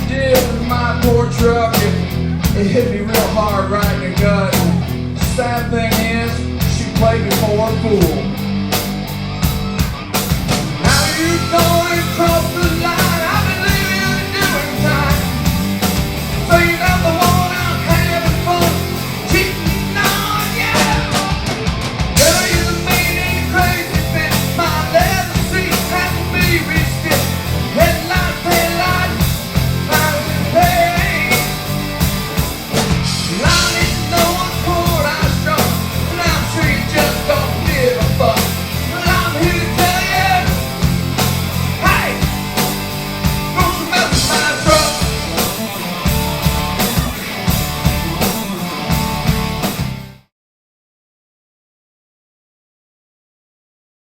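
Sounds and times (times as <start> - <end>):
rock band playing: 0.0 - 50.3
person singing: 10.8 - 15.4, 16.3 - 21.6, 22.2 - 31.7, 33.3 - 40.7, 41.8 - 42.3, 43.5 - 46.0.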